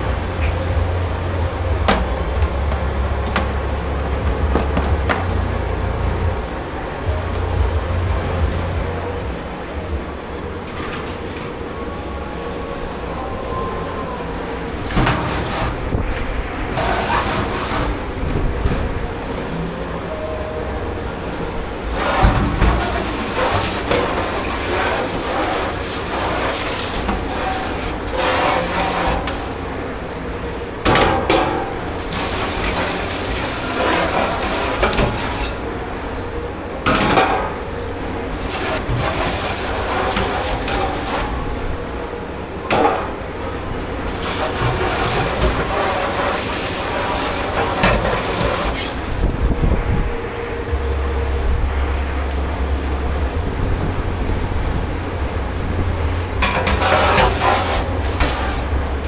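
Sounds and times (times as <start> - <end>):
loud knocks: 1.7 - 5.8
running water hissing over sink: 14.7 - 19.5, 21.7 - 29.8, 31.6 - 36.1, 37.8 - 41.6, 43.7 - 49.1, 55.9 - 59.0.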